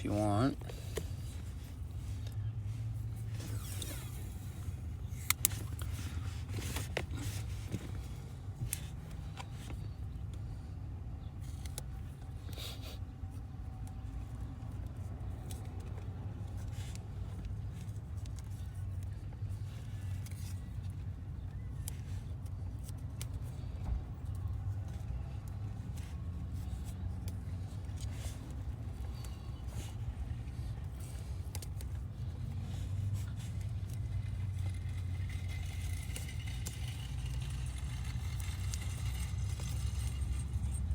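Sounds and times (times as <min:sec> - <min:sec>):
clicks and scrapes of hands: 0:05.1 - 0:09.9, 0:21.8 - 0:40.9.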